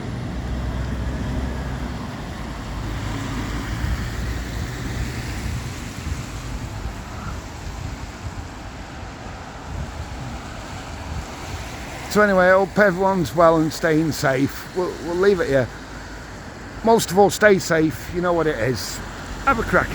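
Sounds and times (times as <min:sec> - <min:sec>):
wind rumbling on microphone: 0:00.0 - 0:13.8
tyres hissing on wet road: 0:00.0 - 0:19.9.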